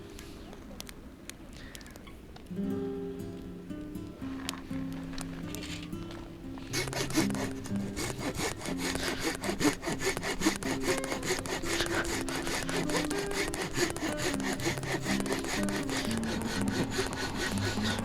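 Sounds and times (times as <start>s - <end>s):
background music: 2.9s - 18.0s
hand saw cutting wood: 5.1s - 18.0s.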